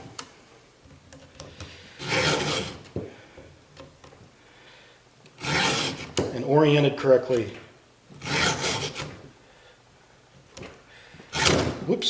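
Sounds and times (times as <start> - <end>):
file guide scrapes and clicks: 1.6 - 2.9, 5.4 - 6.3, 8.2 - 9.2
file rasping across chainsaw tooth: 2.0 - 2.8, 5.4 - 6.2, 8.2 - 9.1.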